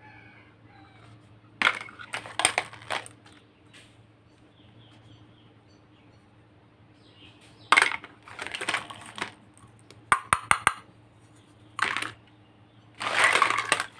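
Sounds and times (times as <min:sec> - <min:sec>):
toy pieces scraping: 0:01.6 - 0:03.4, 0:07.7 - 0:09.4, 0:11.8 - 0:12.2, 0:13.0 - 0:13.9
rustling: 0:13.0 - 0:13.9.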